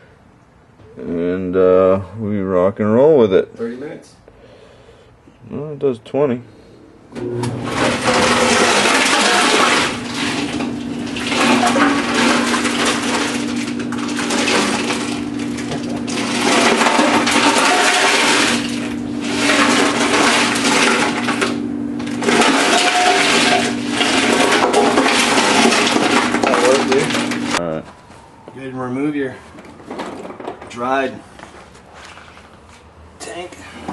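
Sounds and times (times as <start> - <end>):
dryer motor hum: 7.1 - 30.8.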